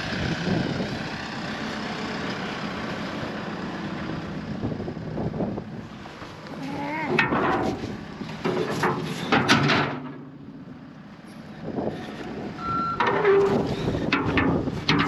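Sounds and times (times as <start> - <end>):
loader engine surging: 0.0 - 15.0
metal knocks: 7.1 - 10.5, 12.6 - 15.0.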